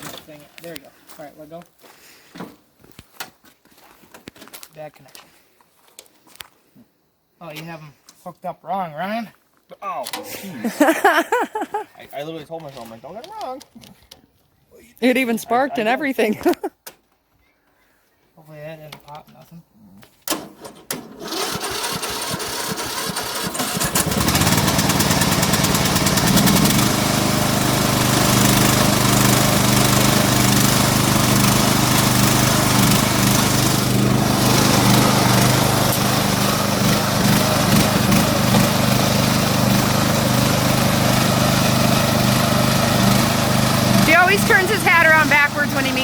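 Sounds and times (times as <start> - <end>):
lawnmower engine cranking and running: 20.3 - 46.0.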